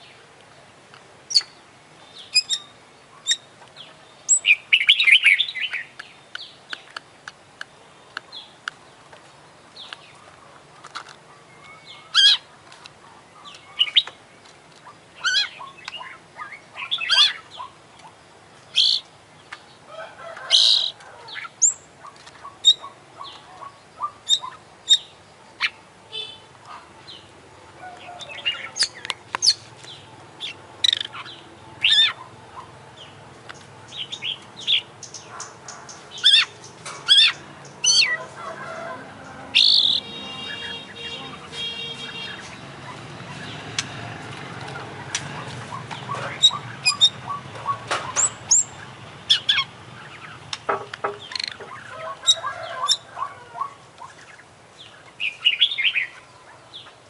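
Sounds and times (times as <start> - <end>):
bird singing chirps and whistles: 2.2 - 3.5, 4.3 - 5.9, 46.4 - 48.7.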